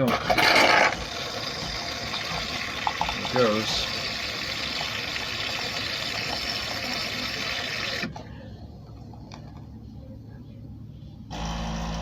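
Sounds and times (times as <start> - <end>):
milk frother steam hiss: 0.4 - 8.1.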